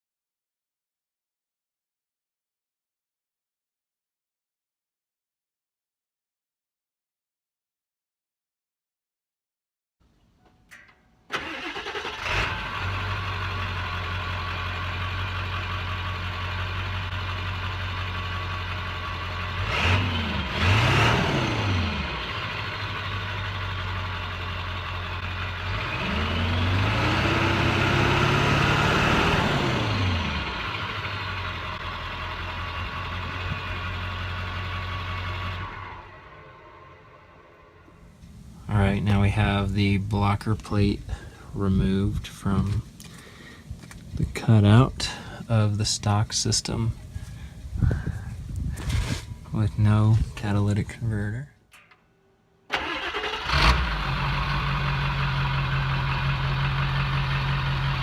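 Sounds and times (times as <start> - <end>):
diesel engine idling and revving: 11.4 - 43.1, 52.8 - 58.0.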